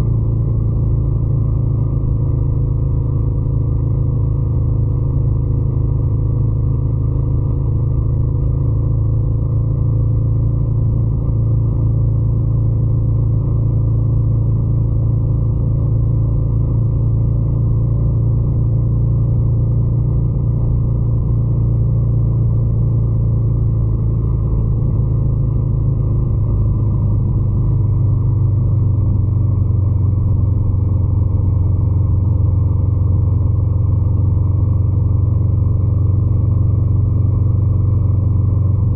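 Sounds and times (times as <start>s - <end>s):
motorcycle engine rumbling: 21.9s - 38.9s.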